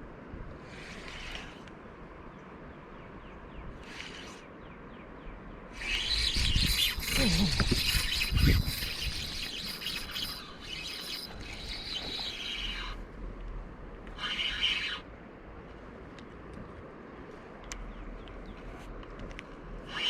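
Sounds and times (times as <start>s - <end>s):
birds chirping: 0.9s - 13.1s, 17.7s - 18.8s.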